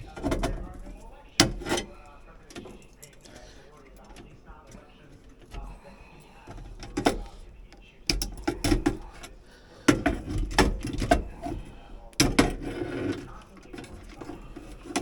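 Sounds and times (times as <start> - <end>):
metal tools clattering: 0.0 - 7.4.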